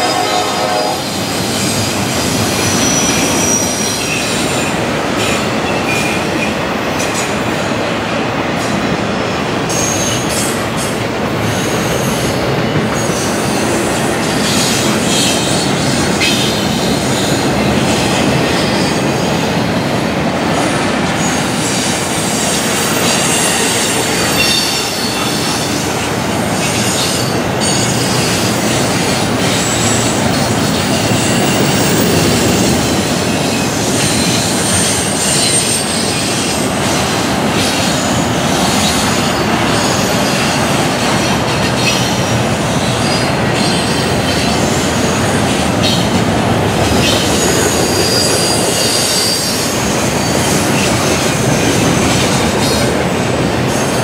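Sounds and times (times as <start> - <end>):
wheels rumbling on rail: 0.0 - 54.0
high-pitched wheel squeal: 2.6 - 4.3, 21.7 - 25.6, 47.0 - 50.9.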